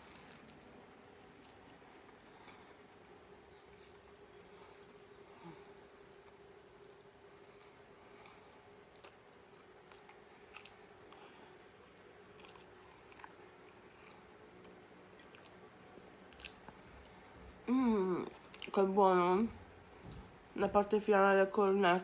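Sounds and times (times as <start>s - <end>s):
quiet chewing: 0.0s - 2.9s, 3.5s - 17.4s, 18.2s - 18.8s
faint steady hum: 0.0s - 22.0s.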